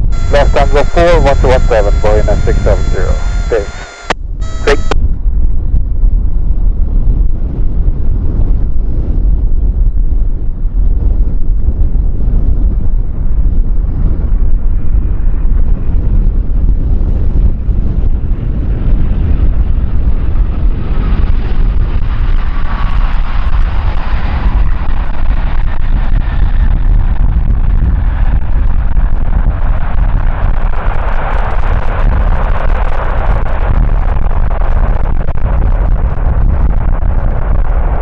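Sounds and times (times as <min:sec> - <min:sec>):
jet engines whining: 0:00.0 - 0:05.0
wind buffeting microphone: 0:01.9 - 0:38.0.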